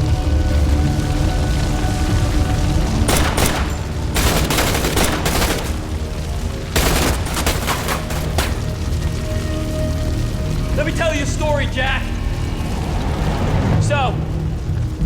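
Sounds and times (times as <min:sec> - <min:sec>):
low background music: 0:00.0 - 0:15.0
automatic gunfire: 0:03.1 - 0:06.0, 0:06.8 - 0:08.6.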